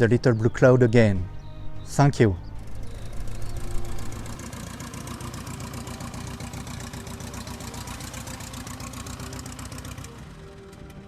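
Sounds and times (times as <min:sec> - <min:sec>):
light aircraft piston engine: 0:02.4 - 0:11.0.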